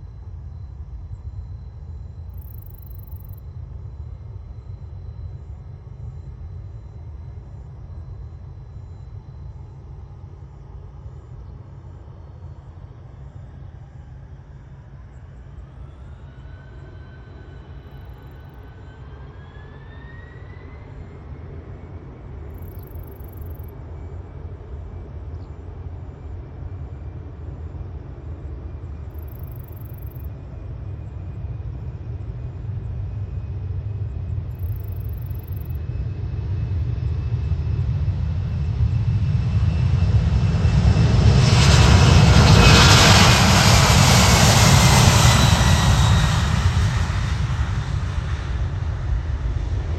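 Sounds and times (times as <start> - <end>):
jet airliner engines passing: 11.8 - 49.9.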